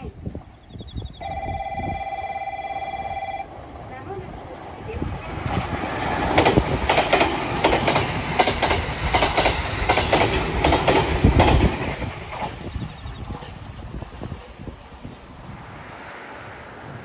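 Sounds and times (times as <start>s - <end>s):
train low rumble: 0.0s - 17.0s
train wheels clattering over joints: 5.4s - 12.8s.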